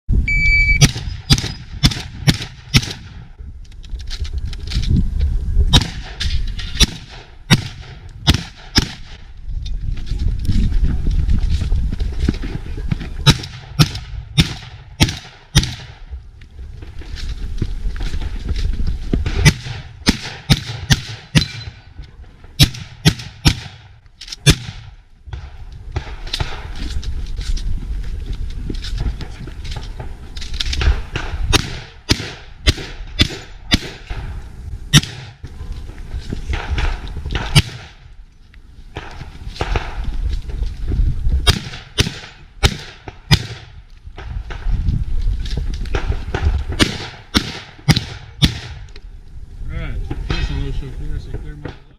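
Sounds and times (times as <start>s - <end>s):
steady low rumble: 0.1s - 51.9s
shotgun shots: 0.7s - 3.2s, 5.7s - 9.2s, 13.2s - 16.1s, 19.2s - 21.8s, 22.6s - 26.7s, 30.8s - 34.3s, 34.9s - 35.4s, 36.5s - 38.0s, 41.4s - 44.6s, 45.9s - 48.9s.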